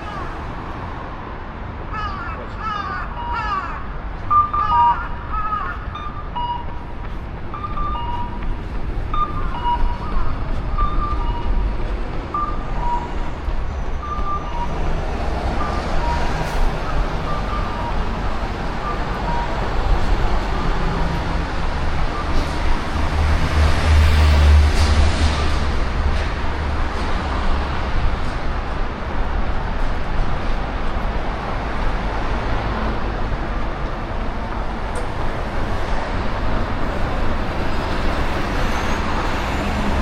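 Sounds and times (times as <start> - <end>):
road traffic: 0.0 - 40.0
two-note electronic beep: 9.1 - 11.7.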